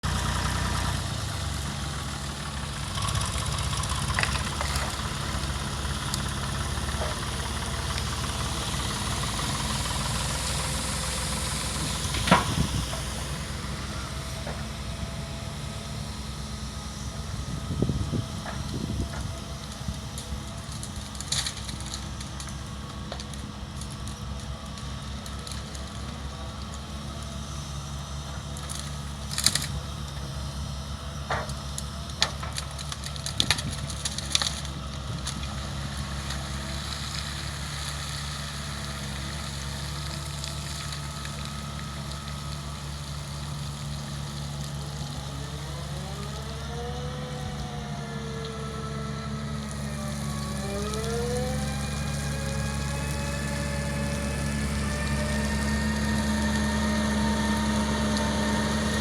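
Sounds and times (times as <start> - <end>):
excavator diesel engine running: 0.0 - 59.0
sharp cracks and knocks: 2.9 - 7.3, 11.8 - 13.1, 18.4 - 26.9, 28.4 - 30.2, 31.2 - 45.2
hydraulic whine rising and falling: 45.5 - 59.0.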